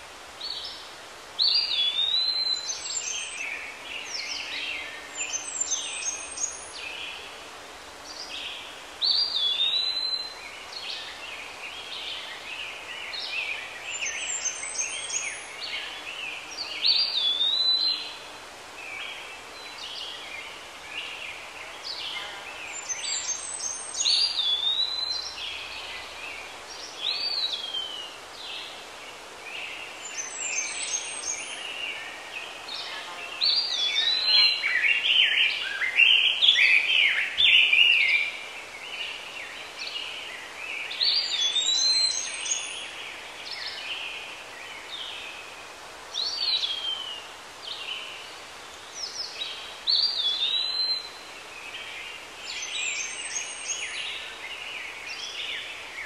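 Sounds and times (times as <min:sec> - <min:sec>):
steady outdoor hiss: 0:00.0 - 0:56.0.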